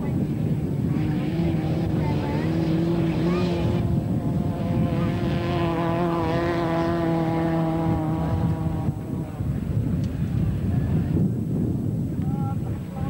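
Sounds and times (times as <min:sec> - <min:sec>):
race car engine running: 0:00.2 - 0:09.7.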